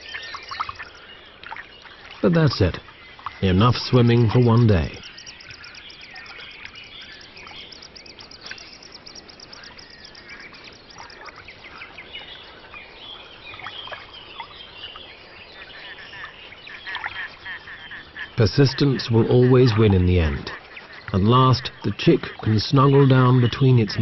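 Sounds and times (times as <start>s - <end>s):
birds chirping and calling: 0.0s - 24.0s
duck-like calls: 16.1s - 23.2s.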